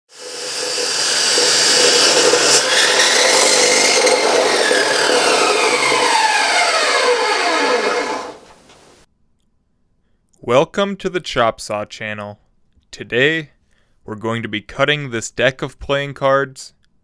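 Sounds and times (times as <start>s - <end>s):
chop saw whine: 0.1s - 9.0s.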